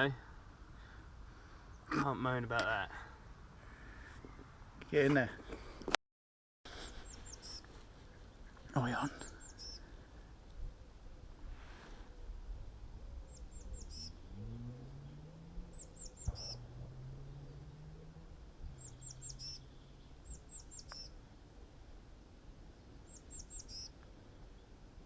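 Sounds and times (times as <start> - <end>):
songbird singing: 6.7 - 11.5, 12.1 - 25.0.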